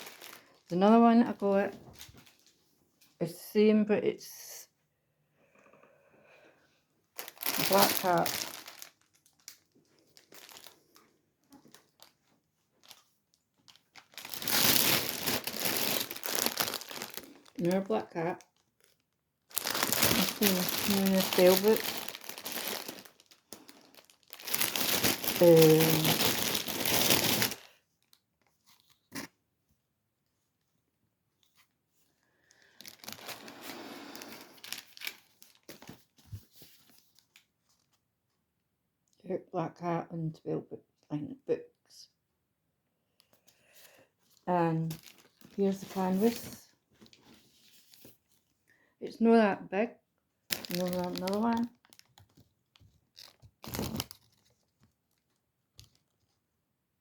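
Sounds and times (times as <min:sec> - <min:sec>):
packaging crinkling: 0:00.0 - 0:00.7, 0:02.0 - 0:02.5, 0:07.2 - 0:29.3, 0:32.5 - 0:37.9, 0:44.8 - 0:48.2, 0:50.5 - 0:56.1.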